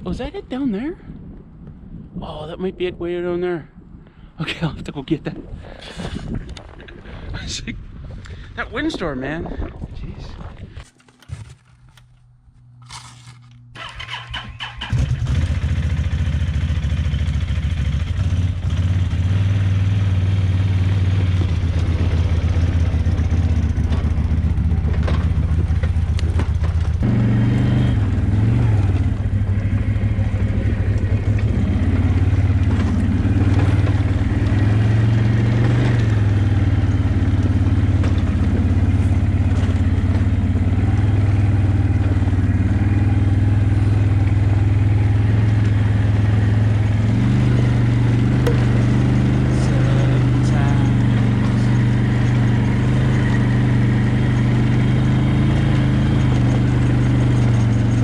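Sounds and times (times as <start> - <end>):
quad bike engine revving: 13.8 - 58.0.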